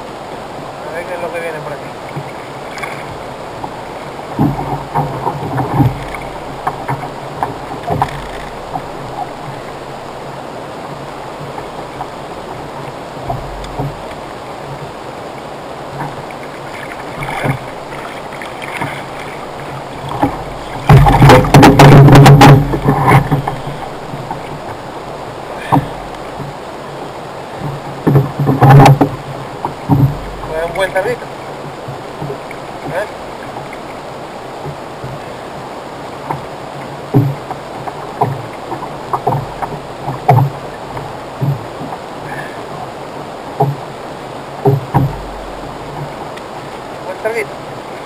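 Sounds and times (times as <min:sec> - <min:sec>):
water lapping: 0:00.0 - 0:48.0
wind: 0:00.0 - 0:48.0
gear knocking against hull: 0:02.1 - 0:10.0, 0:11.1 - 0:15.0, 0:15.9 - 0:26.6, 0:27.6 - 0:34.0, 0:36.2 - 0:42.6, 0:43.6 - 0:43.9, 0:44.6 - 0:46.8
thuds and knocks of fish landing: 0:02.2 - 0:09.9, 0:13.2 - 0:14.9, 0:15.9 - 0:24.8, 0:25.6 - 0:26.6, 0:27.6 - 0:33.8, 0:37.1 - 0:42.0, 0:43.6 - 0:43.9, 0:44.6 - 0:46.3.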